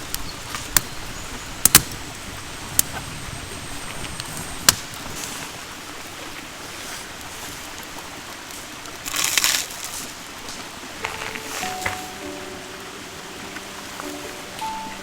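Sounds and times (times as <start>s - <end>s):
fire hissing: 0.0s - 5.2s
campfire crackling: 0.0s - 6.0s.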